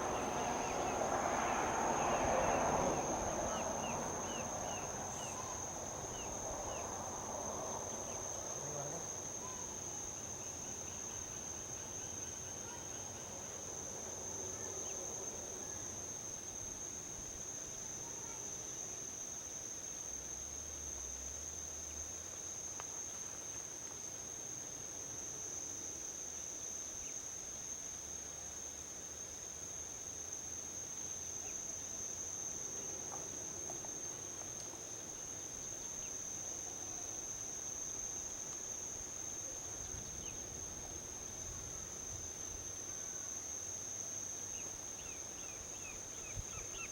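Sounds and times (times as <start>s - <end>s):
distant highway traffic: 0.0s - 9.8s
insects trilling: 0.0s - 20.0s, 29.6s - 46.9s.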